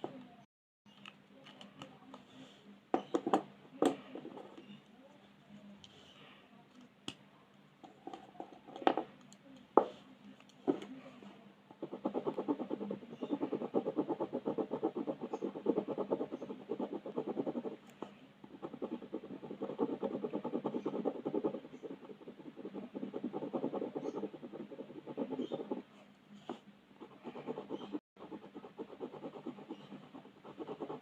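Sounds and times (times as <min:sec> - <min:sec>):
colouring strokes scratching paper: 0:11.8 - 0:17.9, 0:18.5 - 0:31.0.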